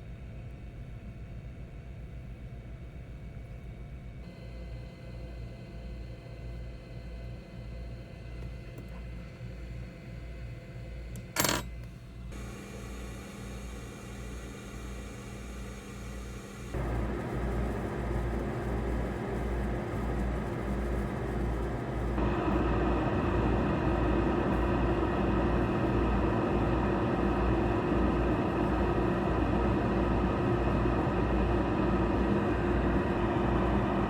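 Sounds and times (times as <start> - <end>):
hot air station hissing: 12.4 - 34.0.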